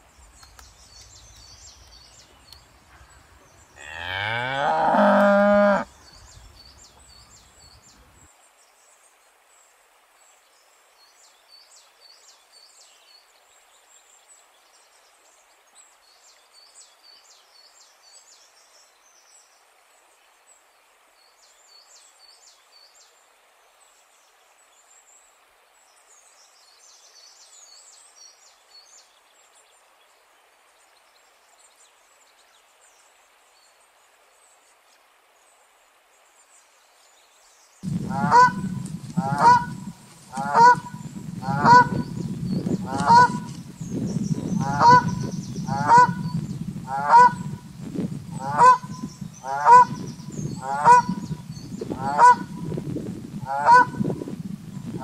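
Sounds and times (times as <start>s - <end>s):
cow mooing: 3.8s - 5.9s.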